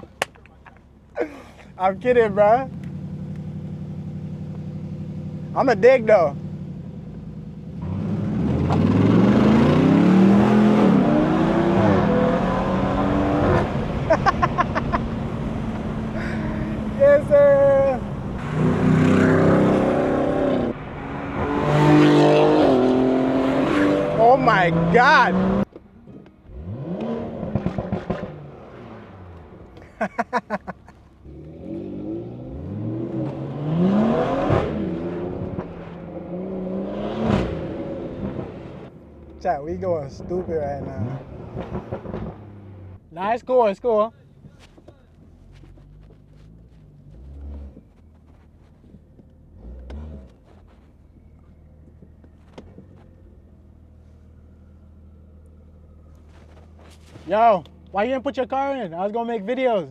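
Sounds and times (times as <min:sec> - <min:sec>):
sharp crack: 0:00.0 - 0:00.9
car accelerating hard: 0:01.7 - 0:43.1, 0:44.4 - 0:58.5.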